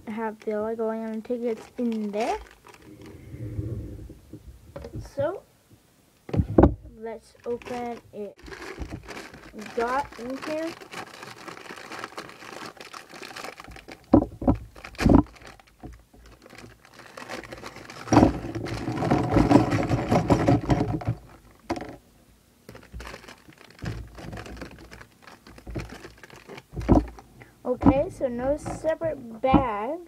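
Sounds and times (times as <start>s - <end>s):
plastic bag crinkling: 0.2s - 3.3s, 7.2s - 22.0s, 22.7s - 29.7s
sharp clicks and knocks: 23.8s - 29.8s.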